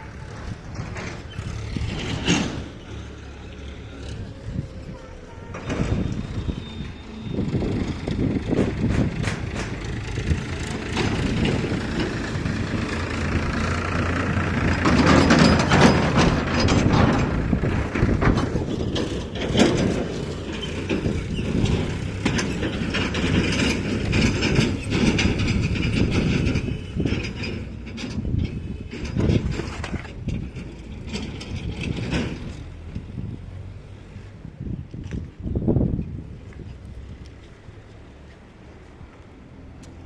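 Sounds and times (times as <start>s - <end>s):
machinery knocking and clattering: 0.0s - 3.2s, 5.5s - 32.8s.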